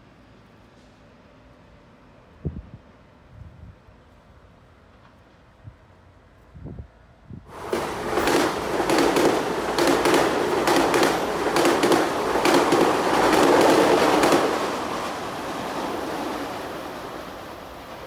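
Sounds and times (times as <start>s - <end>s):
train wheels clacking over rail joints: 7.5s - 16.7s.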